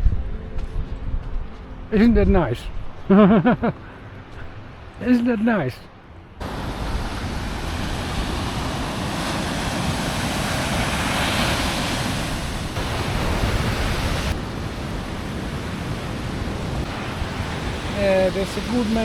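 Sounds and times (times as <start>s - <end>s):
wind buffeting microphone: 0.0s - 3.1s, 6.4s - 19.0s
sea surf washing: 6.4s - 19.0s.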